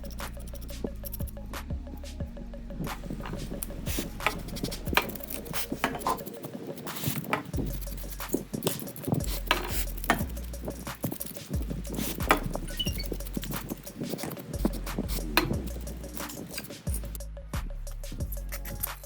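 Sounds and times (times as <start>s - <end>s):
small metal tools clicking: 2.9s - 17.2s.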